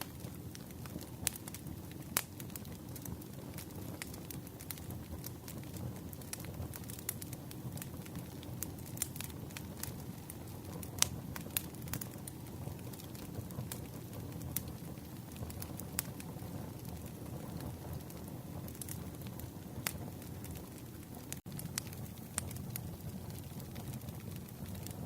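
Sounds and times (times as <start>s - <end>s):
campfire crackling and popping: 0.0s - 25.0s
low rumble of flame: 0.0s - 25.0s.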